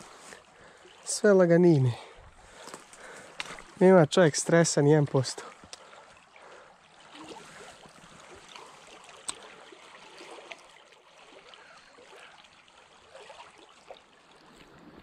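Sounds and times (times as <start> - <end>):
river water rushing: 0.0 - 14.6
faint ticks: 5.6 - 6.0.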